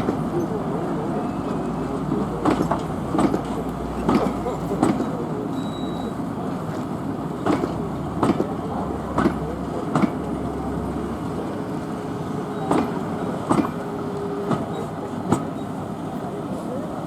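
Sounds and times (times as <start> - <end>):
train rumble: 0.0 - 17.0
train wheels clicking over joints: 12.7 - 13.9.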